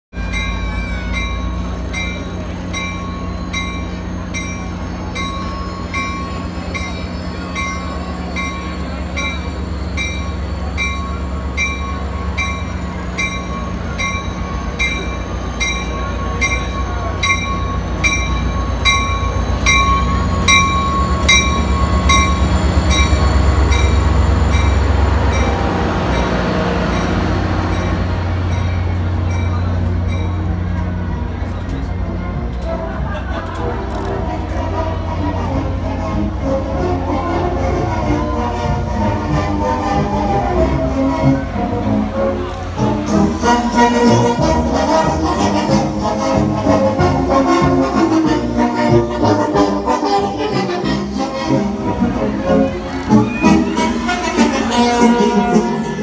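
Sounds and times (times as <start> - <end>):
diesel locomotive rumbling: 0.1 - 56.0
high wheel squeal: 0.2 - 29.8, 37.1 - 56.0
bell ringing: 0.2 - 30.6.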